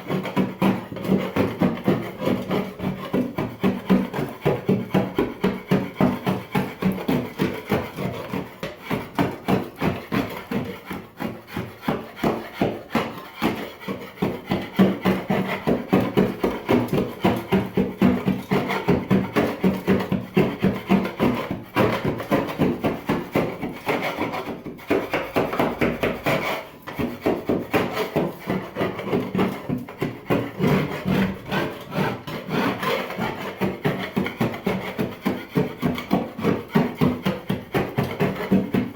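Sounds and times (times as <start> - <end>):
paint scraper scraping: 0.0 - 38.9.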